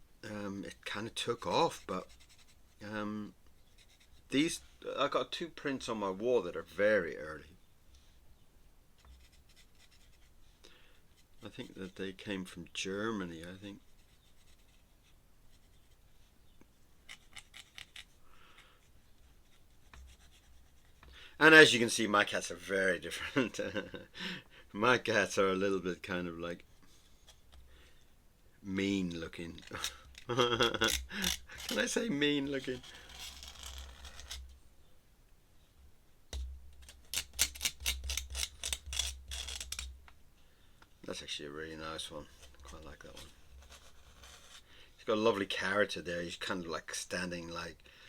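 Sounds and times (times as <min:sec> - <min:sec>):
pen scratching on paper: 0:01.7 - 0:02.8, 0:09.0 - 0:10.3, 0:13.8 - 0:16.0, 0:19.2 - 0:21.1, 0:43.2 - 0:44.6.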